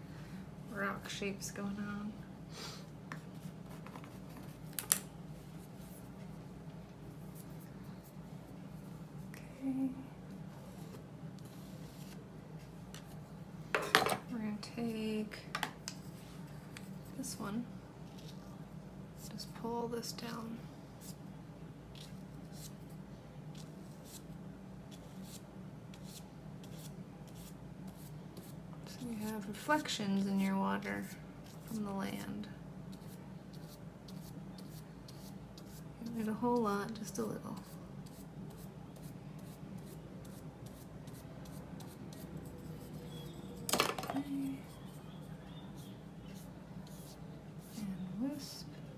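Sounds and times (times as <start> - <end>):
low steady hum: 0.0 - 48.9
paintbrush scratching on paper: 32.9 - 43.3, 44.6 - 48.0
paintbrush swishes on paper: 44.6 - 48.0.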